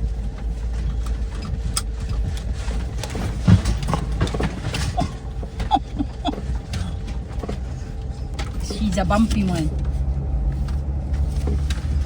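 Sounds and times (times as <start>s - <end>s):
van rumbling over bumpy dirt road: 0.0s - 12.0s
knocks and rattles: 0.8s - 8.7s.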